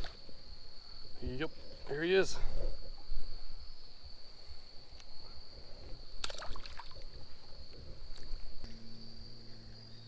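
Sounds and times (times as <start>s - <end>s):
high-pitched insect trill: 0.0s - 10.0s
small water splashes: 6.2s - 7.2s.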